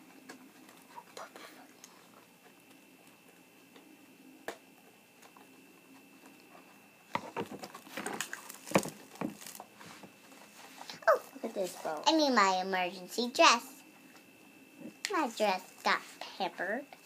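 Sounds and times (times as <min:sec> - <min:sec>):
packaging rustling: 0:07.4 - 0:09.8.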